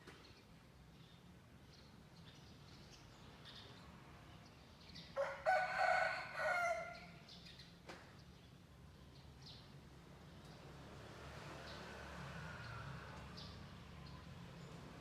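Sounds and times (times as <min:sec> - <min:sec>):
rooster crowing: 0:05.2 - 0:07.0.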